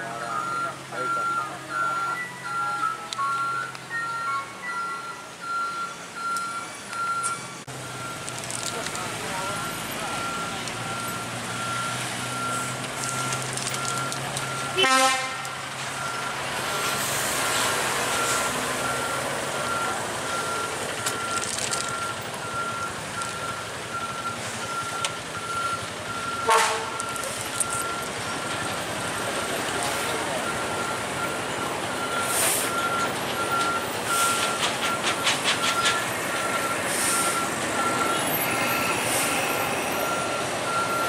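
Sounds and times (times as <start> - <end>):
reversing alarm beeping: 0.0 - 41.0
truck engine running: 0.0 - 41.0
vehicle horn: 14.7 - 15.6, 26.4 - 27.0.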